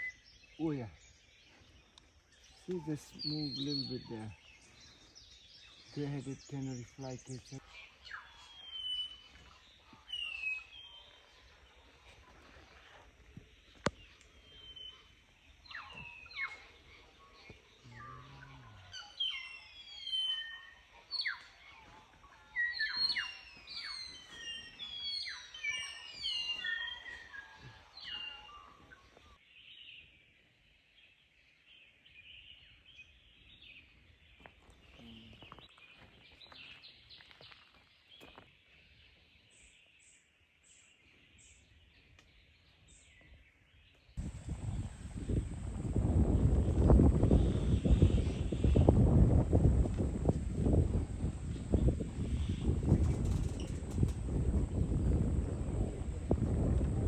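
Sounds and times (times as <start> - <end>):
high bird chorus: 0.0 - 29.9, 44.0 - 57.0
birds whistling: 2.4 - 11.1, 13.8 - 21.6, 22.5 - 29.4.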